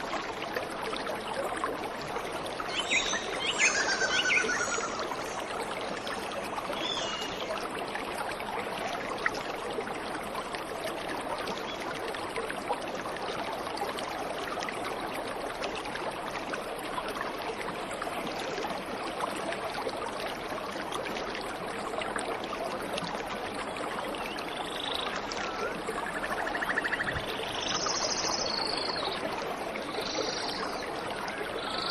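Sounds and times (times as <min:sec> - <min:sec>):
faint bird chirps: 0:02.7 - 0:05.4.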